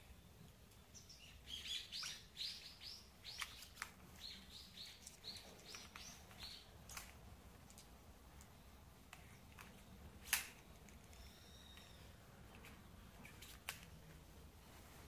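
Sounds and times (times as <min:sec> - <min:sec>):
small bird chirping: 0:00.1 - 0:07.0, 0:11.1 - 0:12.2.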